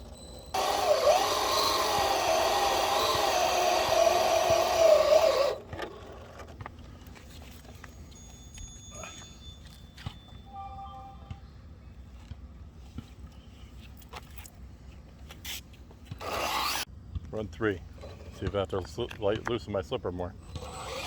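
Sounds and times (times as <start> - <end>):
electric motor whining: 0.5 - 6.0, 16.2 - 16.8, 20.5 - 21.0.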